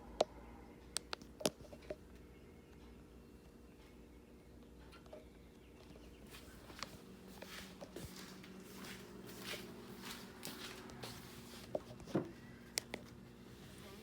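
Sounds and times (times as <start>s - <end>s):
microwave oven humming: 0.0s - 14.0s
soft scuffs: 6.2s - 12.0s.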